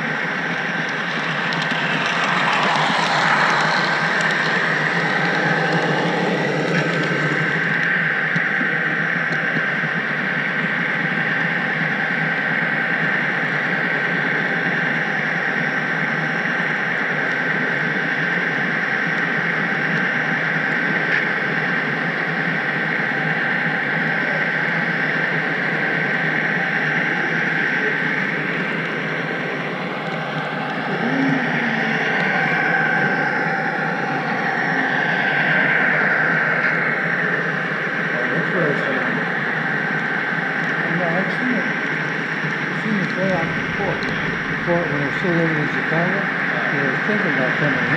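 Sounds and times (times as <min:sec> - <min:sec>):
model train rolling on track: 0:00.1 - 0:08.7
thin steady high tone: 0:21.7 - 0:47.9.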